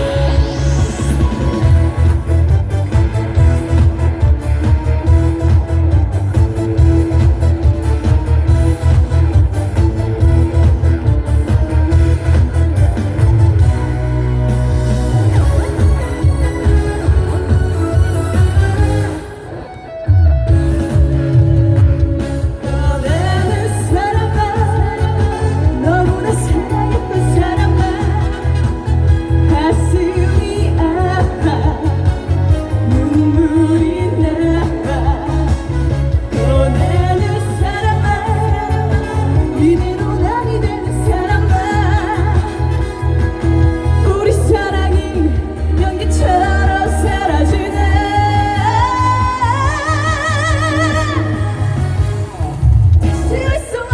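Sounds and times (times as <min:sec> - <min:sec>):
band backing track with bass beat: 0:00.0 - 0:53.9
woman singing: 0:22.4 - 0:52.3, 0:53.0 - 0:53.9.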